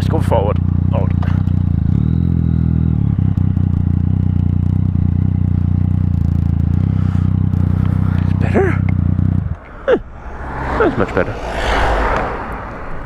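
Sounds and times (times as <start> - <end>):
motorcycle engine idling: 0.0 - 9.9.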